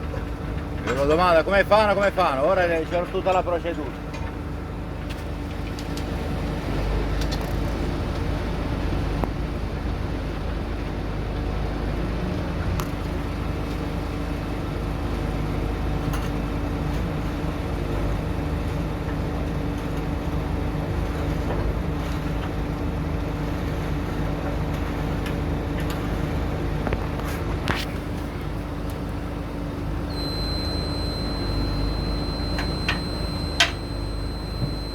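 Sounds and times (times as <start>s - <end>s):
sharp metallic clicks: 30.2s - 34.9s.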